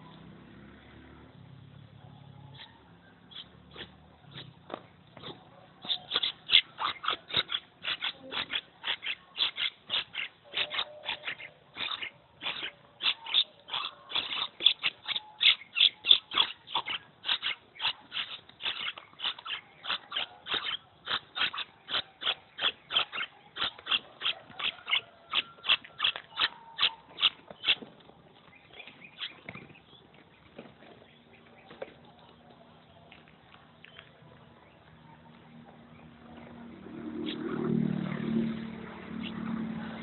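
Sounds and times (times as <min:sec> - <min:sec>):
bird chicks calling: 0:02.4 - 0:33.2.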